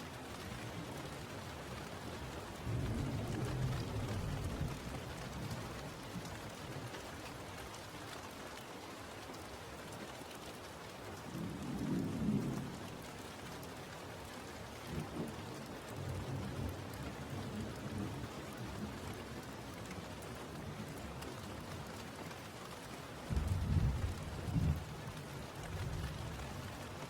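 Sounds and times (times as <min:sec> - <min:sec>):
steady rain: 0:00.0 - 0:27.0
thunder rumbling: 0:23.3 - 0:26.4.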